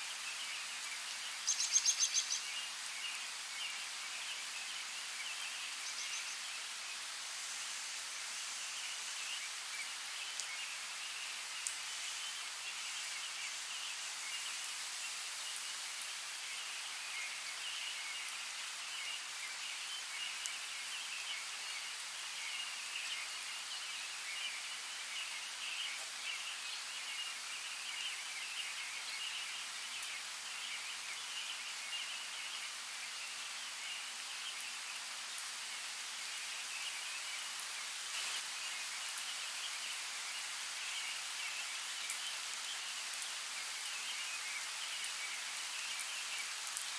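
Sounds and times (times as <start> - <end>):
rain hissing: 30.5 - 46.9.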